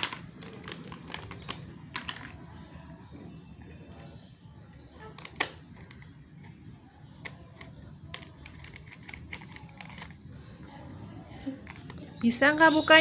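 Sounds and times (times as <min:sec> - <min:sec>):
packet crinkling: 0:00.0 - 0:02.5, 0:08.1 - 0:10.2.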